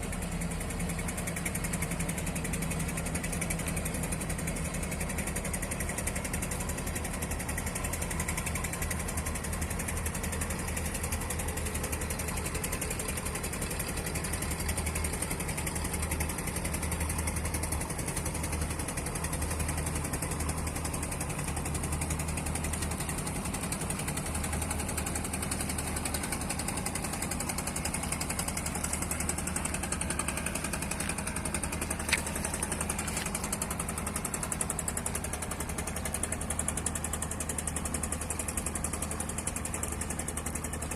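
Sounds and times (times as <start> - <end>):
boat diesel engine knocking: 0.0 - 40.9.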